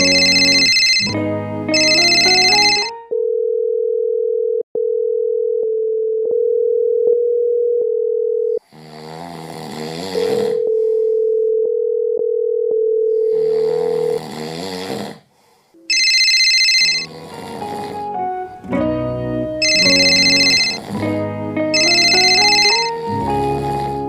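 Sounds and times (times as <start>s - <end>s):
telephone dial tone: 0.0s - 1.2s, 1.8s - 8.6s, 15.9s - 17.1s, 19.6s - 20.8s, 21.8s - 23.0s
electronic ringtone melody: 0.0s - 3.2s, 15.9s - 17.1s, 19.6s - 20.8s, 21.7s - 23.1s.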